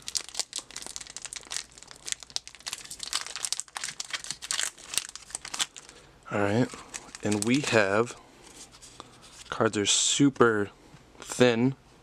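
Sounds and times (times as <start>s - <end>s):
plastic packaging crinkling and tearing: 0.0s - 8.1s.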